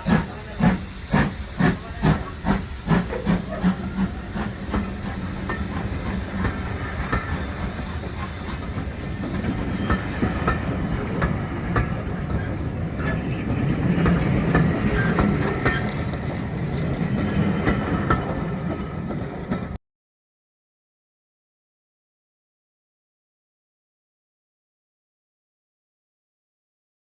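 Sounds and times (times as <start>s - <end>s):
steam locomotive chuffing: 0.0s - 19.8s
train rolling rumble: 0.0s - 19.8s.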